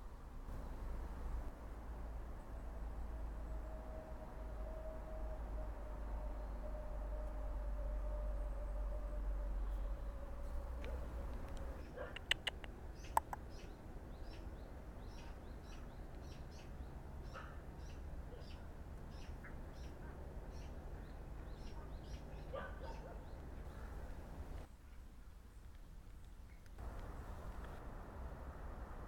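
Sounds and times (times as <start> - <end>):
low rumble: 0.2 - 11.8
sharp clicks: 10.8 - 13.5
small bird chirping: 11.7 - 23.8.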